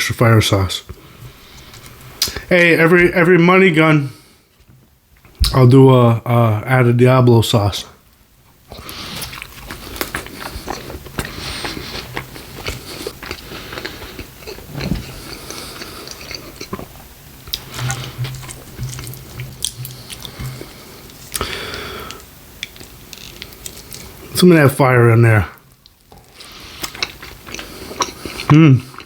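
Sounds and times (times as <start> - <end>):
chewing and biting food: 8.7 - 21.5, 25.8 - 29.0.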